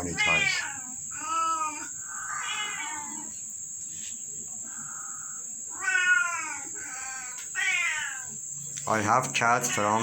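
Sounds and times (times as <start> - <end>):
cat meowing: 0.0 - 3.3, 5.7 - 8.4.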